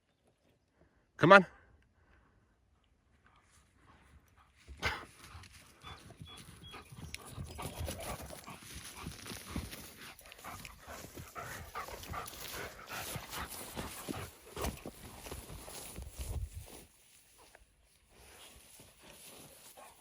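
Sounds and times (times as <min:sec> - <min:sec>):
dog panting hard: 0:03.9 - 0:15.1
footsteps crunching through brush: 0:04.5 - 0:20.0.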